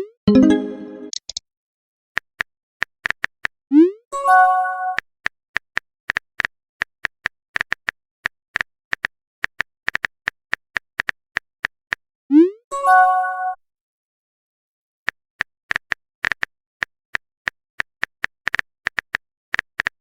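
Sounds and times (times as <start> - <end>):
short notification chime: 0.3 - 1.2.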